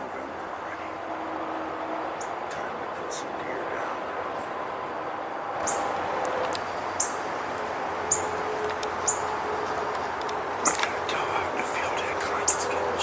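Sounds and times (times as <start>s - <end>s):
small bird chirping: 5.6s - 6.0s, 6.7s - 7.2s, 8.0s - 8.4s, 9.0s - 9.3s, 12.4s - 12.7s
background hiss: 5.6s - 13.0s.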